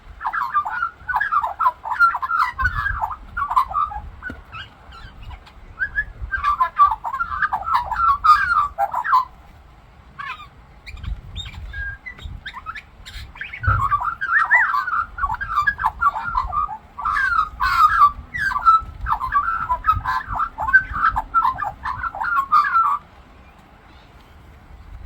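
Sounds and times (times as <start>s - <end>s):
magpie warbling song: 0.1s - 9.3s, 10.2s - 23.0s.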